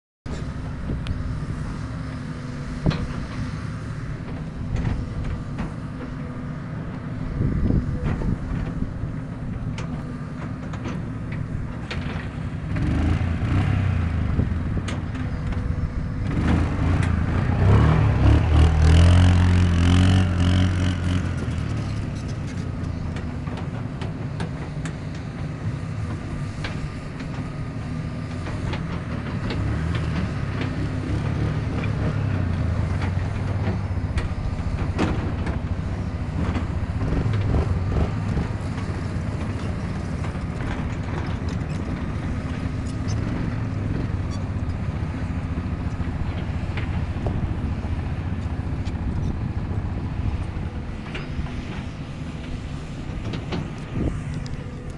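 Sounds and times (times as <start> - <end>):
atv engine revving: 11.9 - 22.8, 29.5 - 54.9
sharp clicks and knocks: 50.3 - 54.9.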